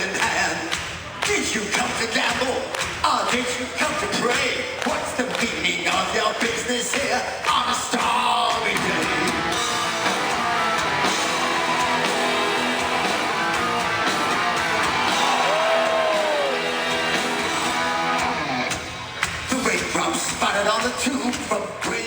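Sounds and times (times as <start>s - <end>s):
electric guitar: 8.6s - 19.5s
heavy metal band playing: 8.6s - 20.4s.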